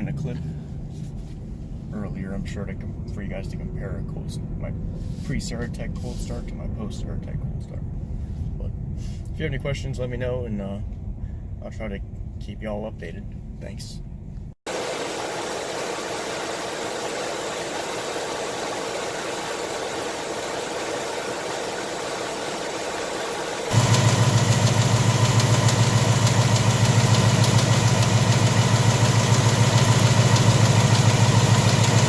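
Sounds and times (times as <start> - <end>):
car engine idling: 14.7 - 32.0.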